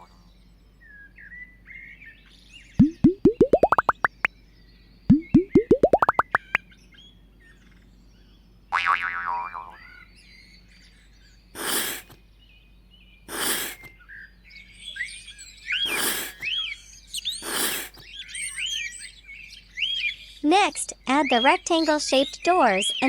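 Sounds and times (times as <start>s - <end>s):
small birds chirping: 2.8s - 6.6s, 10.2s - 23.0s.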